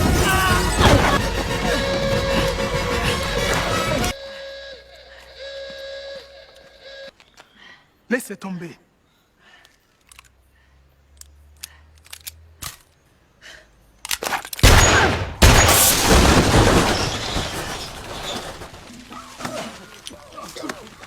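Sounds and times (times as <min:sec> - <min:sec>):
loud explosions: 0:00.0 - 0:04.2, 0:14.6 - 0:18.8
faint clicks: 0:09.6 - 0:10.4.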